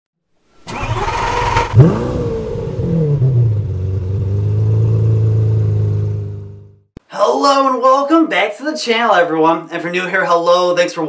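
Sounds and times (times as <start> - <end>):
car engine starting and idling: 0.6 - 6.8.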